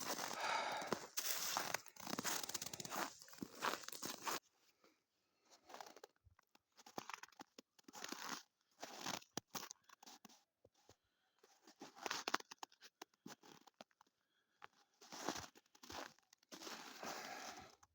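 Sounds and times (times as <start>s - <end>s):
footsteps crunching in snow: 0.0s - 4.4s, 15.2s - 17.8s.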